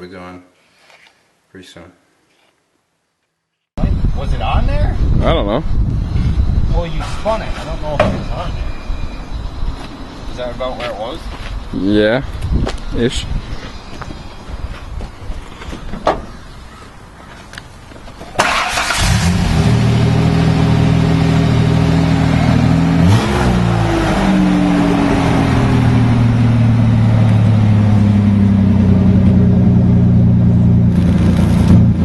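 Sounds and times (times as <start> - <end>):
engine rev: 18.4 - 32.0
vehicle engine starting and running: 18.4 - 32.0.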